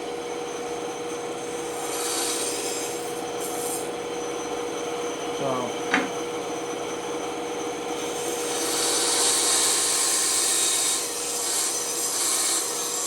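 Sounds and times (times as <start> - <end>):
bandsaw humming: 1.4 - 4.0, 8.0 - 13.0
saw blade rasping through wood: 1.5 - 3.9, 8.0 - 13.0.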